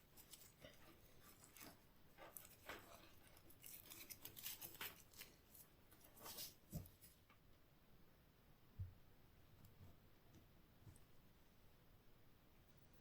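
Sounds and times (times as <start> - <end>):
wire cutters clicking and scraping: 0.2 - 5.4.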